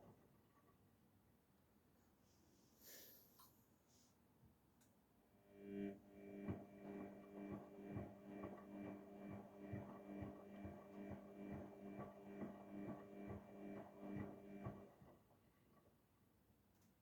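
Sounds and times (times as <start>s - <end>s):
washing machine drum motor hum: 5.4s - 15.8s.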